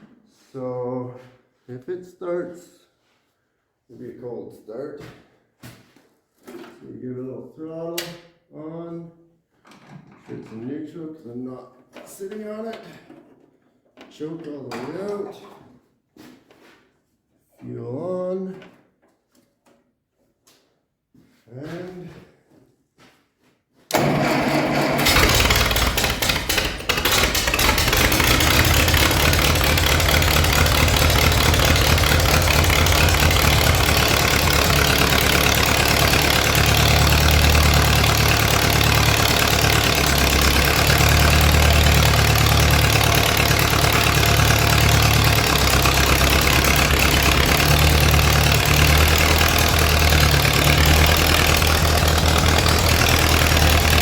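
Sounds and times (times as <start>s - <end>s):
tractor engine starting and idling: 23.9s - 54.0s.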